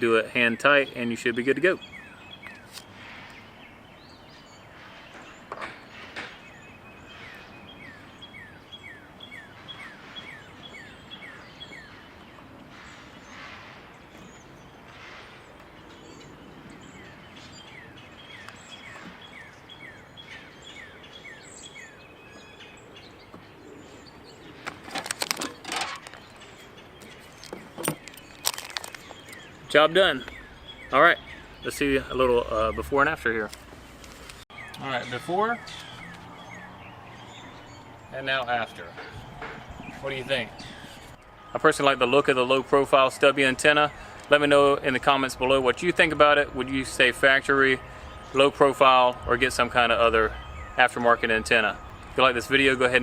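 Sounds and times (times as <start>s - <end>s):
outdoor background noise: 0.0s - 53.0s
songbird chirping: 0.0s - 53.0s
knocks and rustles: 24.6s - 26.4s, 27.0s - 29.2s, 38.9s - 40.0s.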